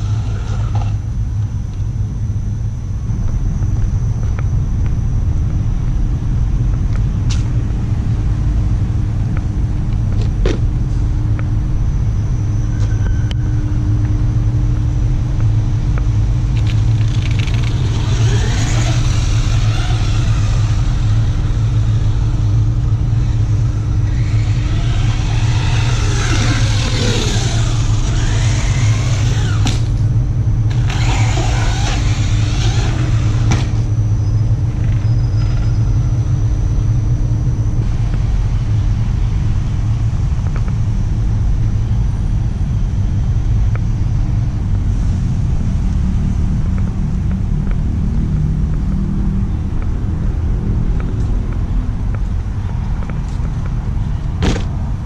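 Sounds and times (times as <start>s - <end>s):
toy truck electric motor whining: 0.0s - 1.1s, 16.6s - 30.0s, 30.7s - 33.9s
steady low rumble: 0.0s - 55.0s
tyre noise: 16.6s - 30.1s, 30.7s - 33.9s.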